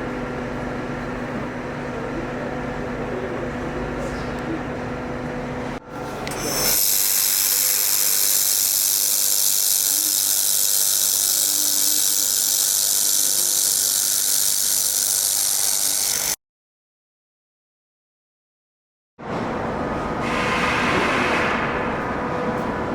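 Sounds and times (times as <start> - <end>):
laser welding machine hissing: 6.5 - 16.4.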